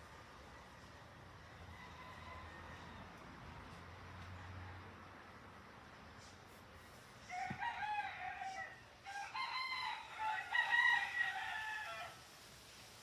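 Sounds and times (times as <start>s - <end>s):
rooster crowing: 1.6s - 3.1s, 7.3s - 12.2s.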